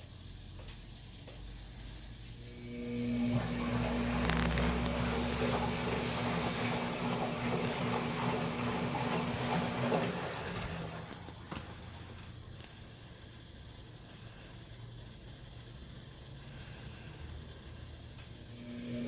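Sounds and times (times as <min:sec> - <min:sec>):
washing machine motor hum: 0:00.0 - 0:19.0
water churning: 0:03.3 - 0:11.2.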